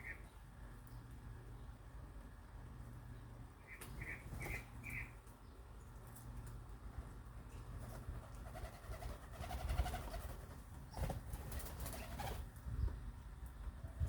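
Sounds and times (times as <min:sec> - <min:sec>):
birds calling: 0:00.0 - 0:01.8, 0:03.1 - 0:06.0.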